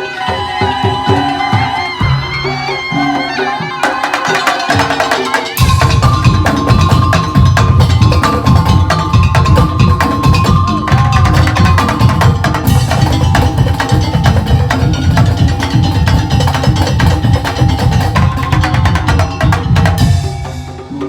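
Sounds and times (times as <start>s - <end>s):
pitched melodic tones: 0.0s - 21.0s
wooden slit-drum strikes: 3.0s - 21.0s
heavy bass drums: 5.6s - 20.8s.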